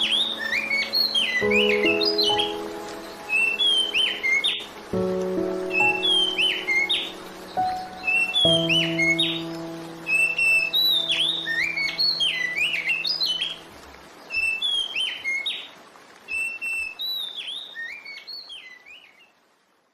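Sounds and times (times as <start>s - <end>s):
piano chord: 0.0s - 13.7s
songbird whistling song: 0.0s - 13.7s, 14.3s - 15.7s, 16.3s - 19.3s.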